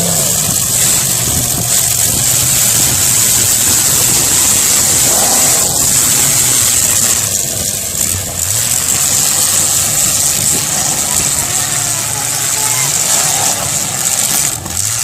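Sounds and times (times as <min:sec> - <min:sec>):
car engines running: 0:00.0 - 0:15.0.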